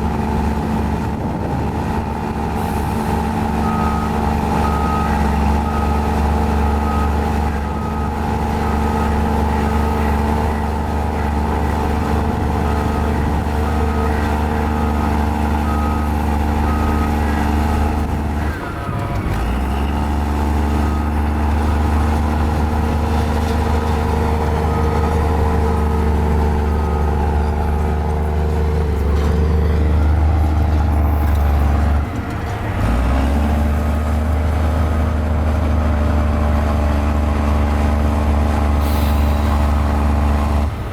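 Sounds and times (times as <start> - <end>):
bulldozer diesel engine running: 0.0 - 40.9
reversing alarm beeping: 2.6 - 32.0.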